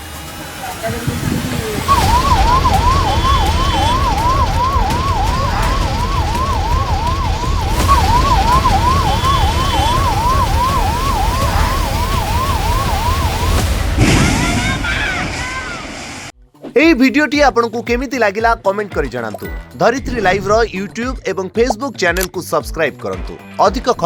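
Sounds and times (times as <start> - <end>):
heavy low rumble: 0.6 - 16.3
emergency siren yelping: 1.1 - 15.7, 20.1 - 21.0.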